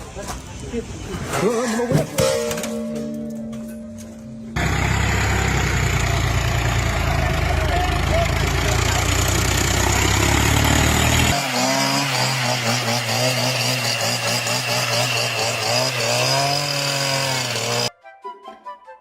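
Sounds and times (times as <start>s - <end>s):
music: 17.9s - 19.0s.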